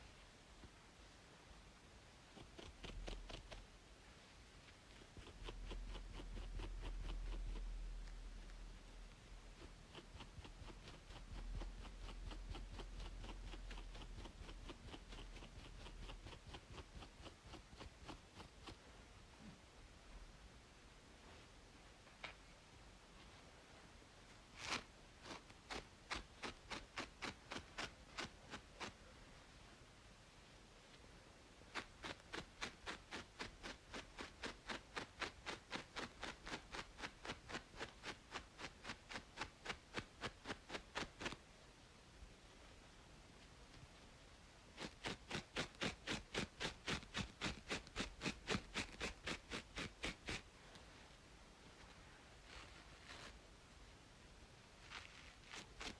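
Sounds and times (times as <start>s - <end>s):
faint white-noise hiss: 0.0s - 55.9s
low steady hum: 0.0s - 55.9s
scratching on a scalp: 2.2s - 3.8s, 4.5s - 19.0s, 24.5s - 29.1s, 31.6s - 41.4s, 44.7s - 51.0s, 51.8s - 53.4s, 54.8s - 55.9s.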